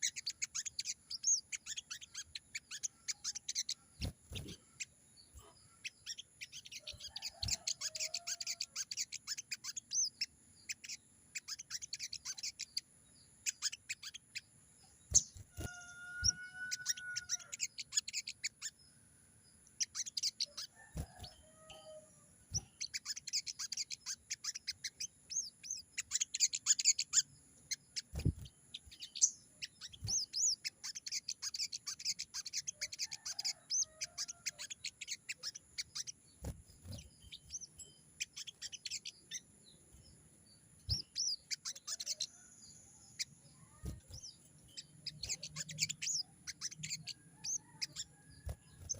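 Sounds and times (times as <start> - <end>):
bird chattering trills: 0.0 - 12.8, 13.4 - 14.5, 15.1 - 18.8, 19.8 - 39.8, 40.9 - 48.9.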